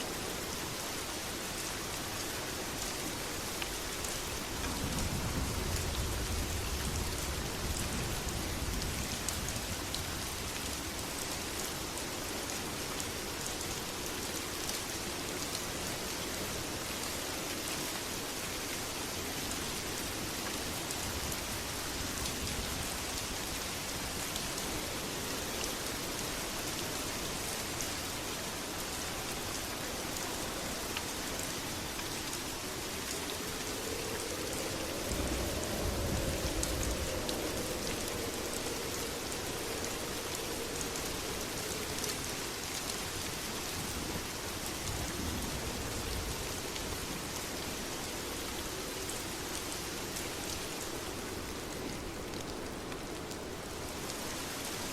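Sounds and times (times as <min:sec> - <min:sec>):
heavy rain: 0:00.0 - 0:54.9
low rumble of thunder: 0:04.3 - 0:11.0, 0:32.5 - 0:42.4.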